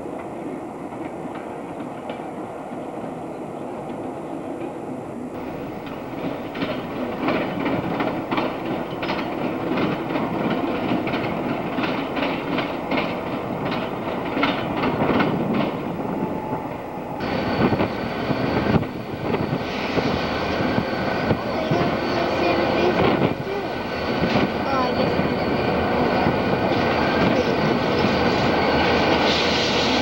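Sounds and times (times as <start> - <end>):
diesel train rumble: 5.4 - 30.0
wheels clacking over rail joints: 5.4 - 30.0.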